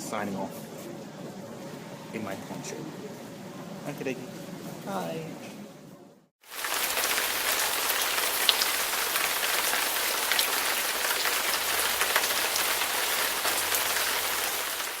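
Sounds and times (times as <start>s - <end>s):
heavy rain falling: 6.4s - 15.0s.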